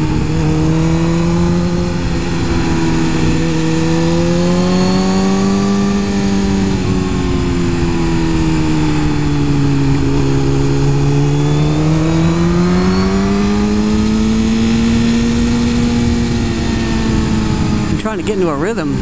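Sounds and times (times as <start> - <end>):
motorcycle engine under way: 0.0 - 19.0
wind rush: 12.2 - 19.0.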